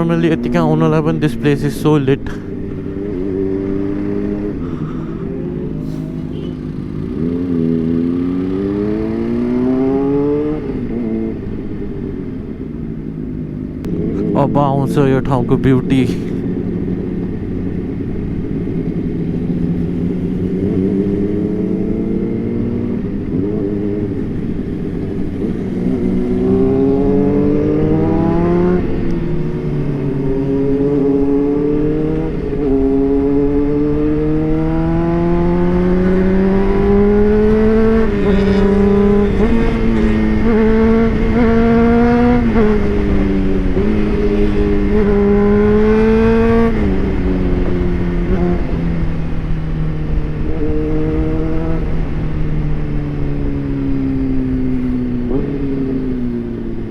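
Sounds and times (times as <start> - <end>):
motorcycle engine accelerating: 0.0 - 56.9
wind noise: 21.9 - 56.9.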